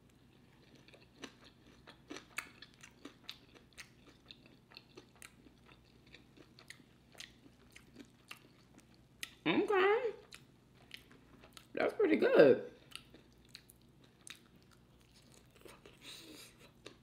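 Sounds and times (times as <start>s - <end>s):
wet chewing: 0.6s - 9.4s, 12.8s - 17.0s.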